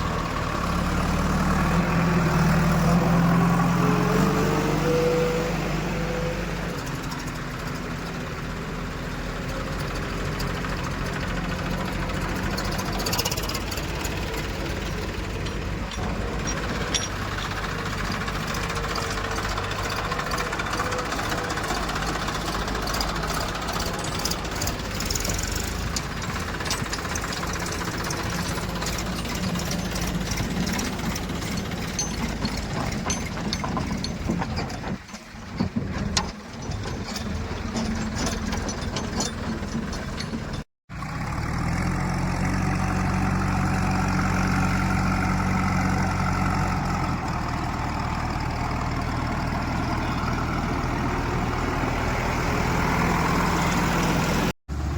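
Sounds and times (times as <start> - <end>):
engine low hum: 0.0 - 54.9
heavy diesel engine running: 0.0 - 54.9
metal knocks and clanks: 12.2 - 40.6.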